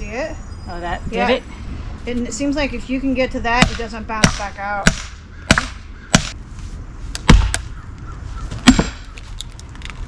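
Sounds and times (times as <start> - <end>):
sledgehammer striking steel wedge: 3.6 - 6.4, 7.2 - 7.6, 8.5 - 9.2.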